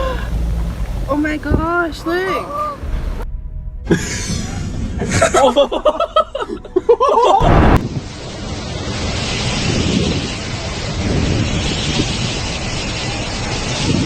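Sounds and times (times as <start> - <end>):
steady rushing noise: 7.4 - 14.0.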